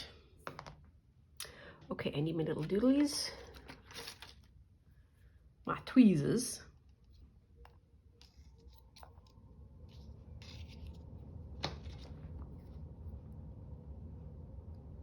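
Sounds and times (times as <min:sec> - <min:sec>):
paper rustling: 0:03.0 - 0:04.6, 0:08.2 - 0:12.8.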